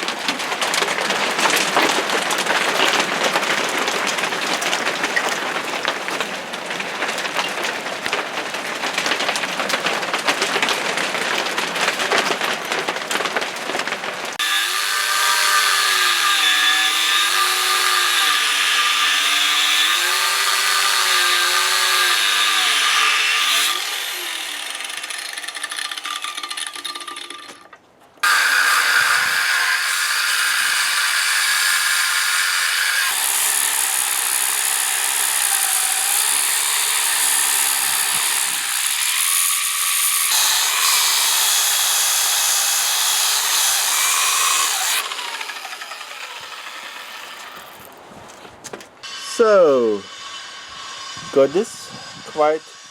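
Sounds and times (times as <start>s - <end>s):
power tool cutting metal: 14.4s - 27.5s, 28.2s - 47.8s, 49.0s - 52.9s.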